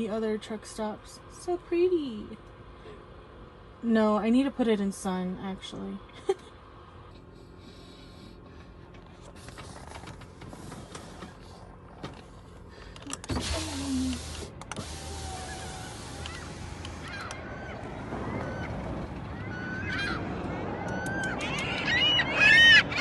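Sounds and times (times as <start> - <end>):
low steady hum: 0.0 - 21.9
handling clicks and rustles: 8.6 - 13.4
power window motor running: 13.3 - 17.4.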